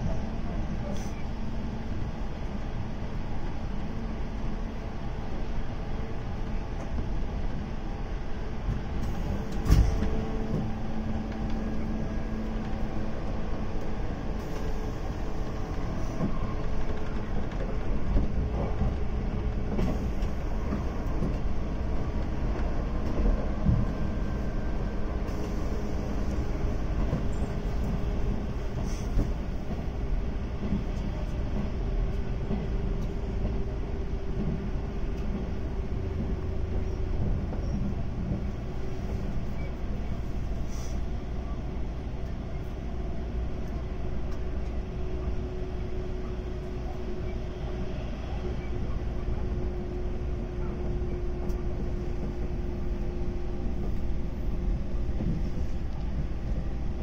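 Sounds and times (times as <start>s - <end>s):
train rumbling on rails: 0.0s - 57.0s.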